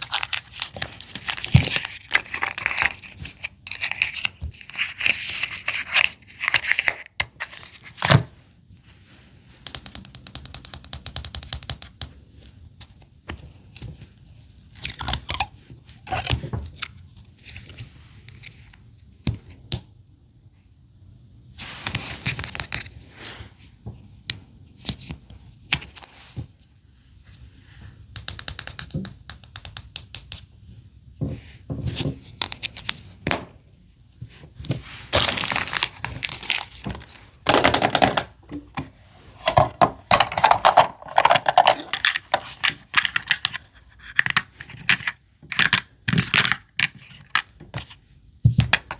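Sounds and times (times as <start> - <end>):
plastic wrappers crinkling and tearing: 0.0 - 7.7, 35.2 - 37.2.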